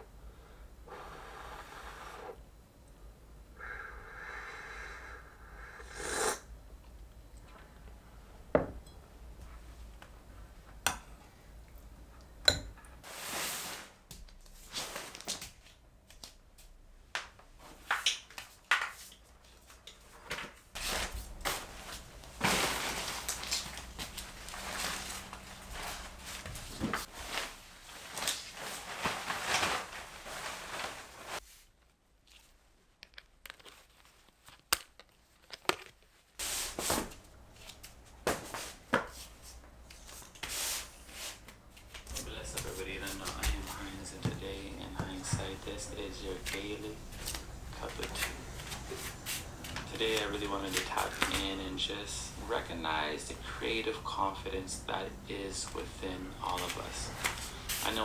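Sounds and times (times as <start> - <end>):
dishes clinking and knocking: 12.4 - 12.9.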